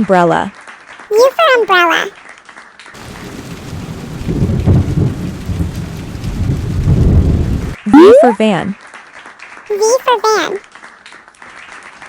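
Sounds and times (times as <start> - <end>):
rain hiss: 3.0 - 7.8
thunder rumble: 3.0 - 7.8.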